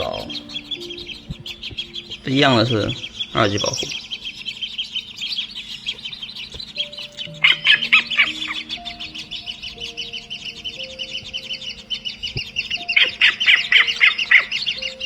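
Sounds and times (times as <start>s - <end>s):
nestling birds chirping: 0.0s - 15.0s
soft background music: 0.0s - 15.0s.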